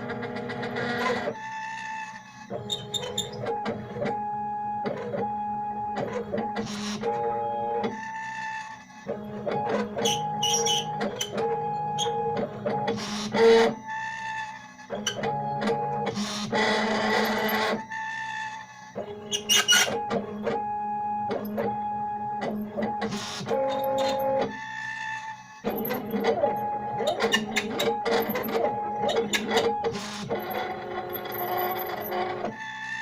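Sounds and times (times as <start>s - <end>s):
stepper motors whining: 13.0s - 33.0s.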